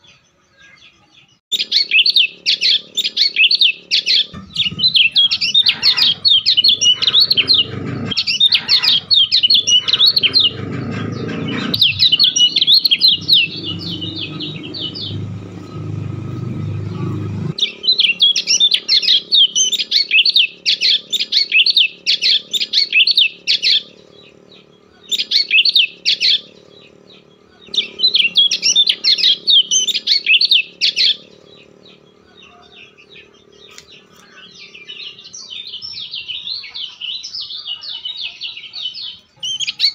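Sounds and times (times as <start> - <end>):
bird chirping in rapid runs: 0.0 - 39.9
low rumble: 4.3 - 18.3.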